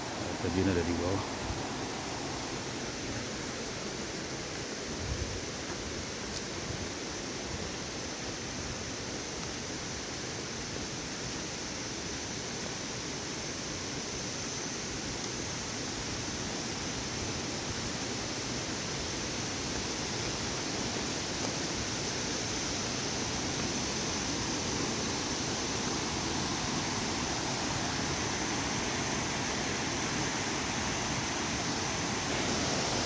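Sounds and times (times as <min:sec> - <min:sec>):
waterfall rushing: 0:22.8 - 0:33.0.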